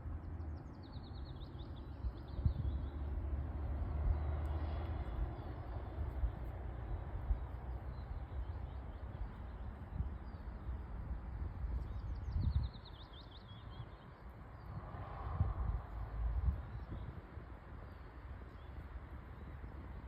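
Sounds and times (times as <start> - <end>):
steady low rumble: 0.0 - 20.0
bird chirping: 11.8 - 14.8.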